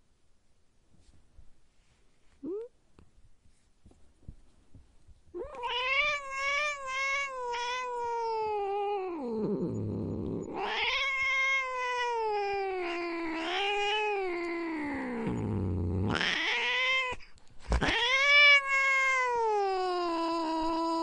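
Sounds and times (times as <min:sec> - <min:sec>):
cat yowling and growling: 0:05.4 - 0:21.0.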